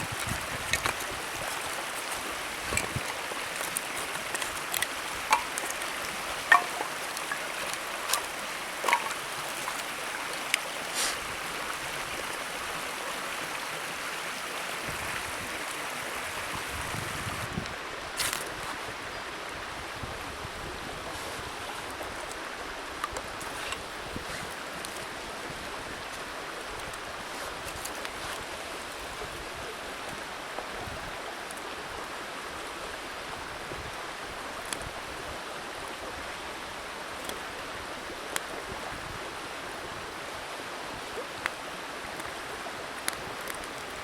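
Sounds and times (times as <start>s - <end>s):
campfire crackling: 0.0s - 12.4s.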